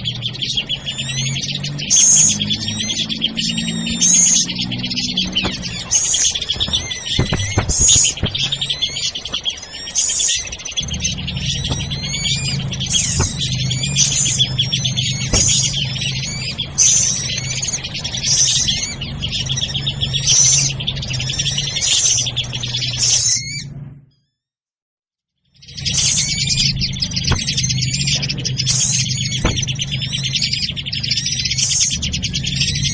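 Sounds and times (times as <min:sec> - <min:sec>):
birds chattering and whistling: 0:00.0 - 0:23.8, 0:25.6 - 0:32.9
steady low hum: 0:10.5 - 0:22.6.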